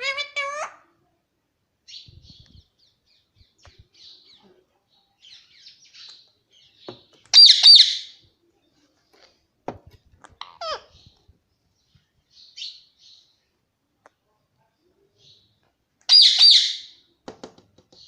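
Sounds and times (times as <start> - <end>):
parakeet screeching: 0.0 - 0.8, 7.4 - 8.1, 10.4 - 11.0, 16.1 - 16.9.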